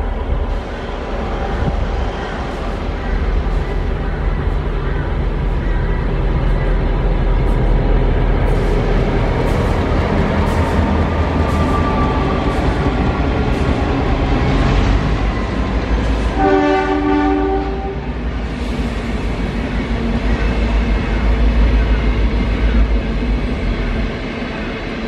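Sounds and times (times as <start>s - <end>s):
train horn: 16.3s - 18.1s.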